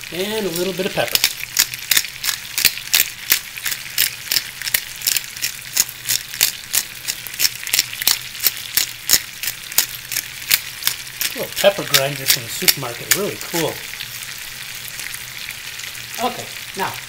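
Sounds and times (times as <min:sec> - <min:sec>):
chicken sizzling in a skillet: 0:00.0 - 0:17.0
fat spattering pops: 0:01.1 - 0:13.8.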